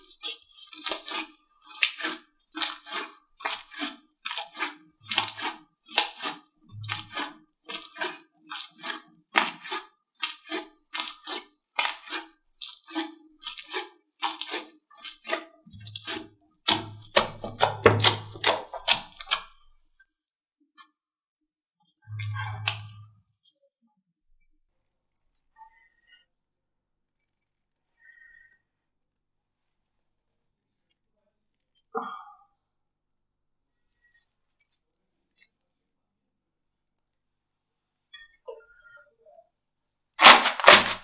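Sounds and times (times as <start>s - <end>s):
slime popping and crackling: 0.5s - 19.6s, 40.2s - 41.0s.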